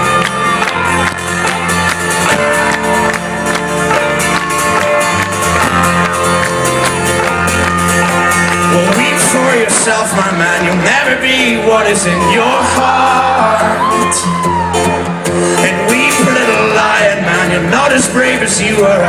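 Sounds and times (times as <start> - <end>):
crowd noise: 0.0 - 19.0
folk-rock band playing: 0.0 - 19.0
person singing: 7.8 - 19.0.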